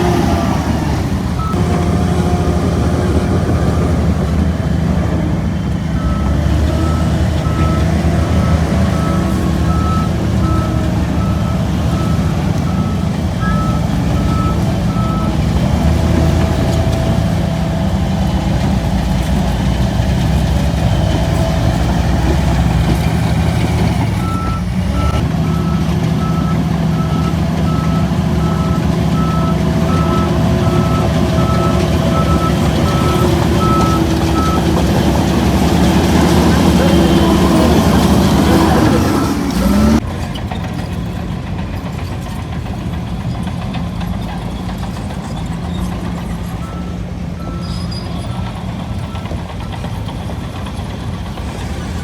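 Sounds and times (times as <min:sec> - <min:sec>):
bulldozer diesel engine running: 0:00.0 - 0:52.0
reversing alarm beeping: 0:05.9 - 0:18.6, 0:23.2 - 0:40.0.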